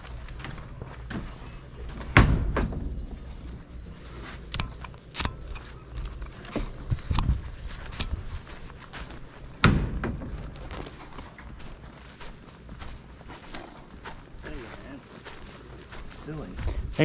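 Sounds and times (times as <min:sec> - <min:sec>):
irregular knocks and clunks: 0:00.4 - 0:03.5, 0:09.6 - 0:11.5.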